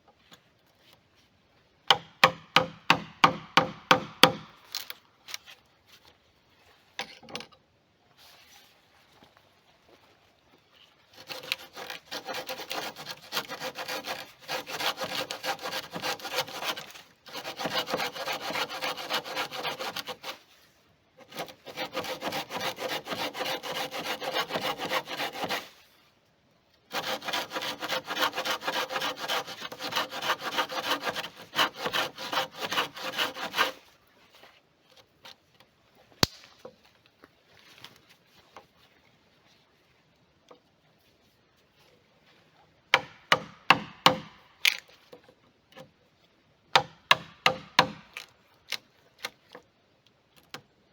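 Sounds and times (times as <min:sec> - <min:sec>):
saw cutting wood: 0:11.2 - 0:20.5, 0:21.2 - 0:25.7, 0:26.9 - 0:33.8.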